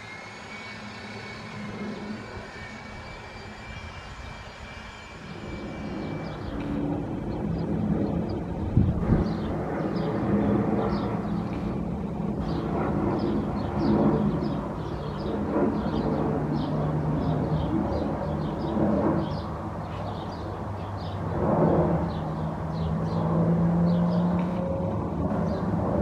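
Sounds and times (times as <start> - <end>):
jet engines droning: 0.0 - 26.0
small birds chirping: 6.0 - 11.8.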